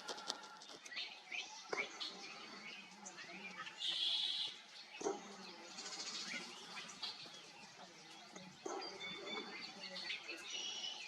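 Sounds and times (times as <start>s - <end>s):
bird high whistled calls: 3.6s - 4.6s.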